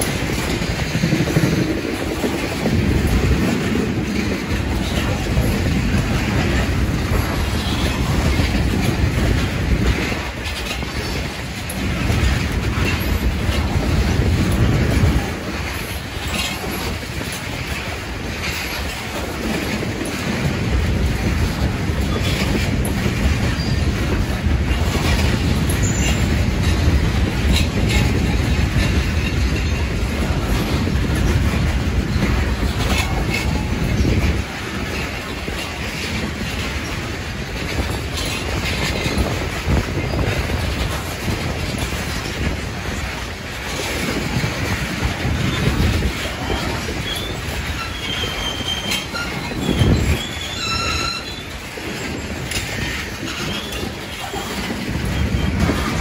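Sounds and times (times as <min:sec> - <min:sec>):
freight train wheels rumbling: 0:00.0 - 0:56.0
high wheel squeals: 0:47.0 - 0:53.9.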